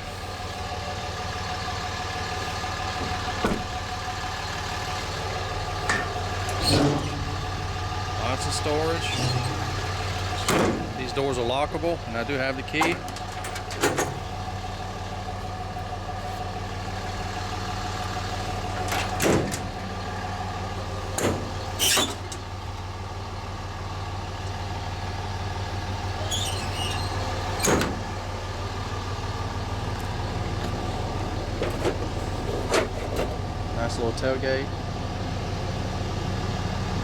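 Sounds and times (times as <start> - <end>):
diesel engine idling: 0.0 - 37.0
compartment doors clunking: 2.9 - 3.9, 12.7 - 14.3.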